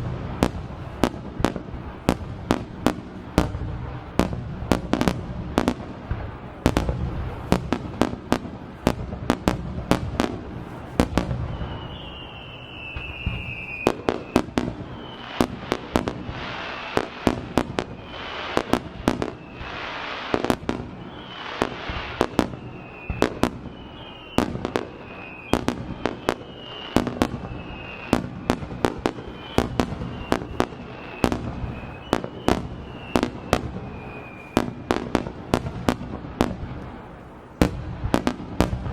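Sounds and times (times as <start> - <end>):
crackling of firework stars: 0.0 - 38.9
falling whistling tones: 11.2 - 35.0.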